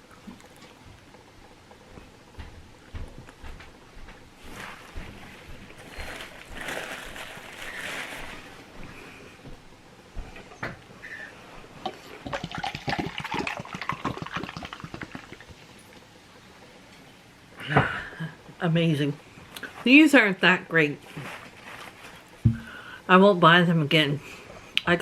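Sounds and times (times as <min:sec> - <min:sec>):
chewing and crunching food: 0:00.0 - 0:09.4, 0:10.8 - 0:18.2.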